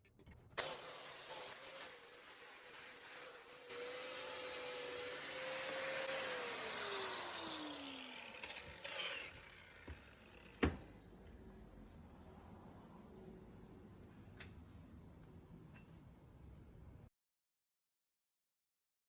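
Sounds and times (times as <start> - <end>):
power tool motor whining: 3.2 - 10.6.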